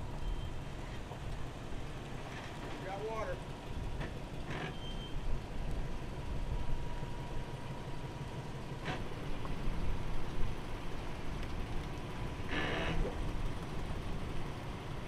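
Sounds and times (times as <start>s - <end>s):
faint steady high tone: 0.0s - 1.0s
suv engine running low: 0.0s - 15.0s.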